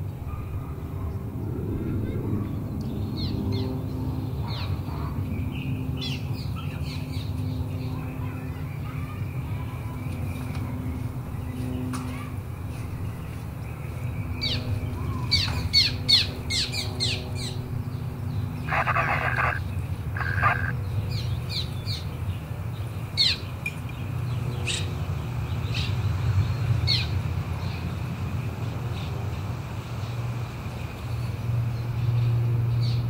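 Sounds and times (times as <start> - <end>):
low background hum: 0.0 - 22.0
birds chirping: 17.9 - 21.0
harsh buzzy bird call: 18.6 - 20.8.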